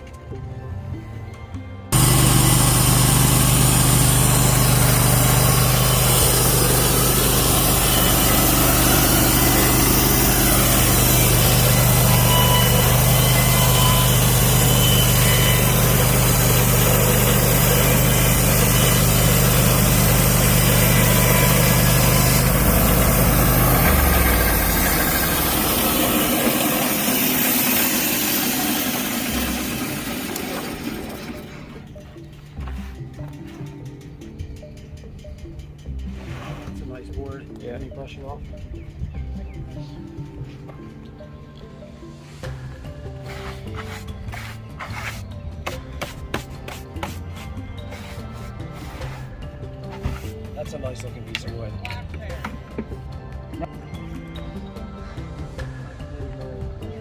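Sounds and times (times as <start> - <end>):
sawmill engine under load: 1.9 - 33.4
band blade sawing log: 2.0 - 31.6, 43.2 - 50.4.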